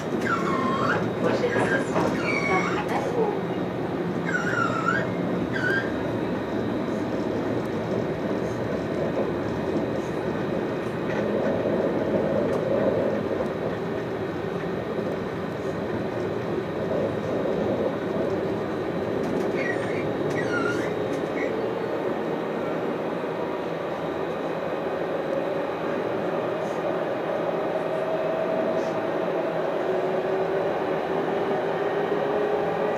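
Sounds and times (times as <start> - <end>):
tram wheels rumbling on rail: 0.0 - 32.9
high squeaks: 4.2 - 6.0, 19.6 - 21.5.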